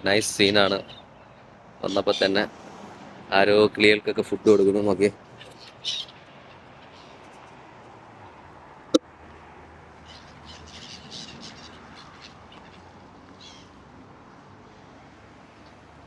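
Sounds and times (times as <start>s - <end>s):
birds calling: 0.4s - 2.5s, 5.2s - 8.4s, 10.0s - 13.8s.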